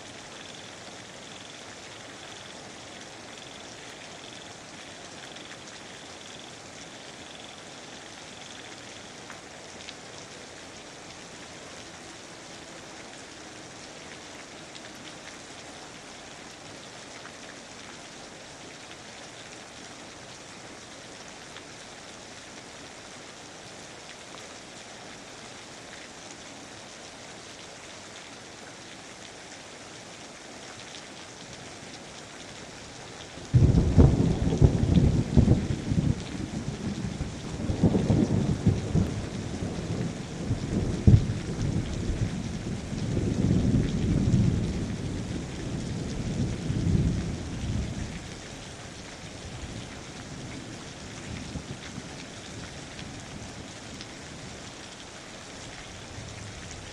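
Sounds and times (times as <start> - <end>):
rain falling: 0.0 - 56.9
thunder crack rumbling: 33.5 - 36.5.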